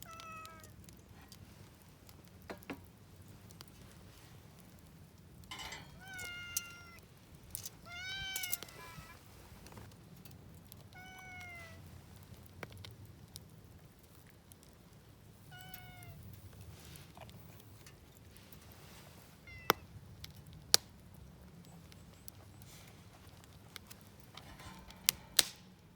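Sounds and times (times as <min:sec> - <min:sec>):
cat meowing: 0:00.0 - 0:00.8, 0:05.9 - 0:07.0, 0:07.8 - 0:09.2, 0:10.9 - 0:11.8, 0:15.5 - 0:16.2, 0:19.4 - 0:19.8
sharp clicks: 0:24.6 - 0:25.8.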